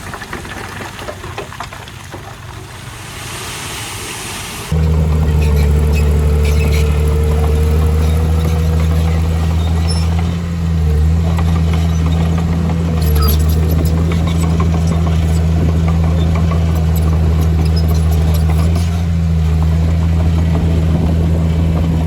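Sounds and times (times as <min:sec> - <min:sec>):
diesel engine droning: 0:04.4 - 0:22.0.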